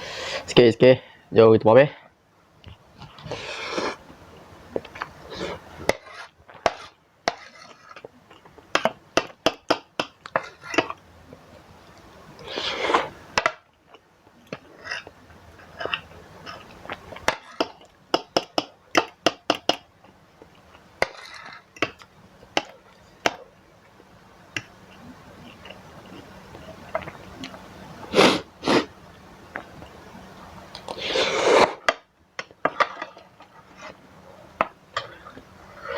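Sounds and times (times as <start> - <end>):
slurping: 3.2 - 4.0, 4.9 - 8.1, 12.4 - 13.2, 30.7 - 31.9.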